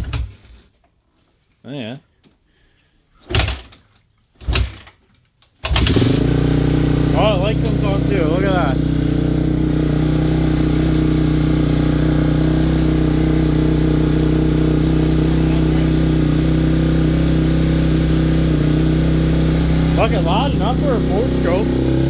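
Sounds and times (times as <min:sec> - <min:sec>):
motorcycle engine idling fast: 0:05.8 - 0:22.0.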